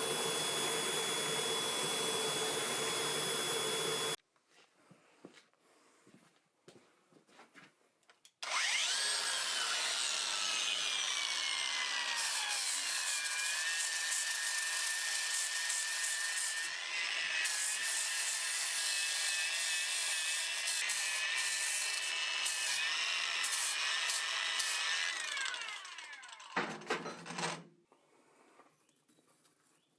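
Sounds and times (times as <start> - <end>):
electric grinder grinding steel: 0.0 - 4.2, 8.4 - 26.8.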